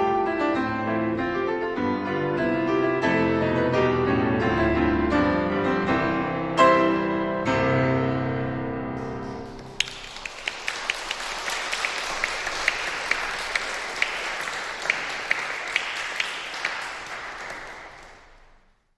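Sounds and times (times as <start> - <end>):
audience applauding: 9.0 - 18.6.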